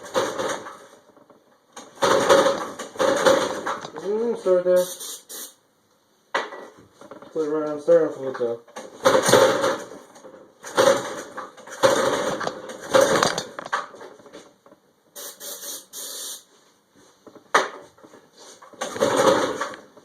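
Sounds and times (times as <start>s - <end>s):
spray can hissing: 4.8s - 5.6s, 15.2s - 16.5s.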